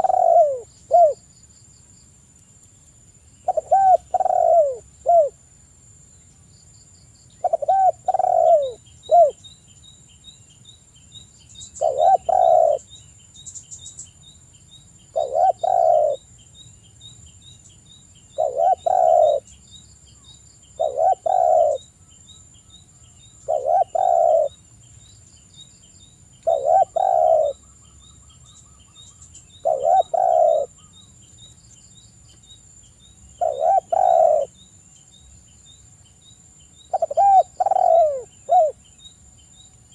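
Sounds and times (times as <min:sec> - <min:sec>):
dove cooing: 0:00.0 - 0:01.2, 0:03.5 - 0:05.4, 0:07.4 - 0:09.4, 0:11.8 - 0:12.9, 0:15.1 - 0:16.2, 0:18.4 - 0:19.5, 0:20.8 - 0:21.9, 0:23.4 - 0:24.6, 0:26.4 - 0:27.7, 0:29.6 - 0:30.9, 0:33.4 - 0:34.5, 0:36.9 - 0:38.8.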